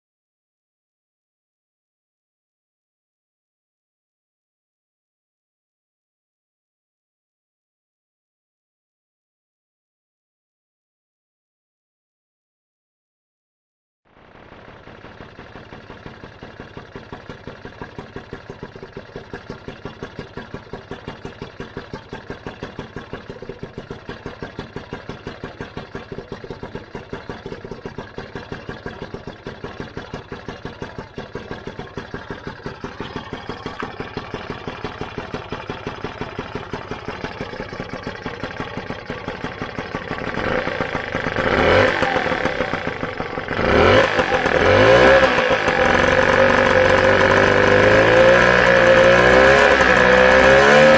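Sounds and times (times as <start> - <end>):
scooter engine idling and revving: 14.1 - 50.9.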